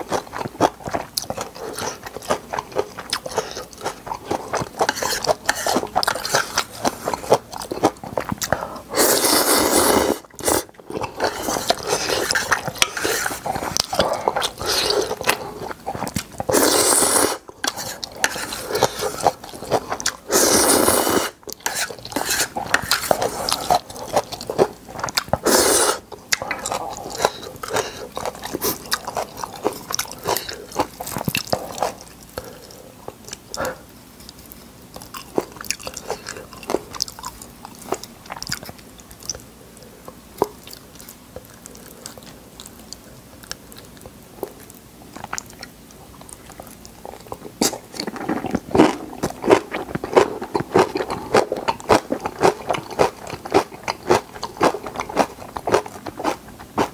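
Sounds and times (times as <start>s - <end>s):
chewing and biting noodles: 40.6s - 56.9s.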